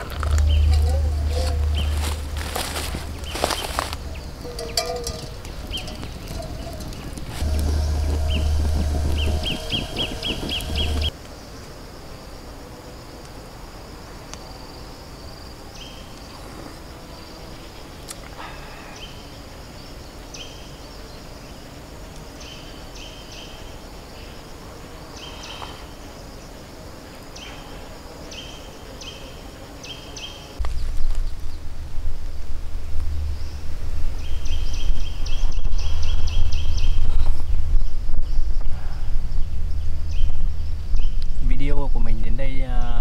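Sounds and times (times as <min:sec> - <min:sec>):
deep bass thump: 0:00.0 - 0:04.6, 0:05.3 - 0:11.1, 0:39.1 - 0:41.5
steady low background: 0:00.0 - 0:11.1, 0:30.6 - 0:36.8, 0:37.9 - 0:42.3.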